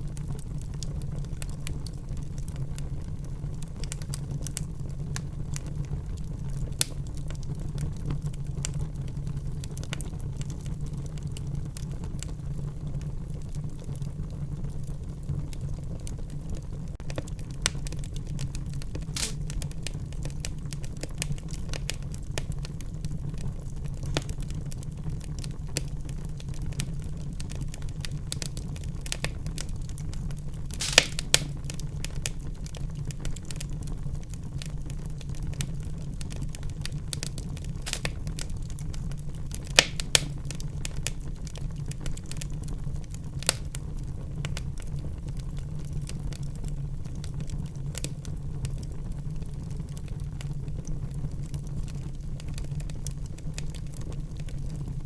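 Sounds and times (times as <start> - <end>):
fire popping and snapping: 0.0 - 55.0
low rumble of flames: 0.0 - 55.0.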